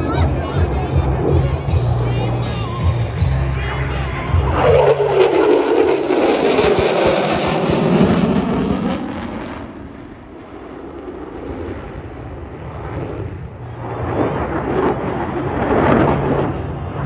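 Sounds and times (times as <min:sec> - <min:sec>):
jet engine rumbling past: 0:04.0 - 0:17.0.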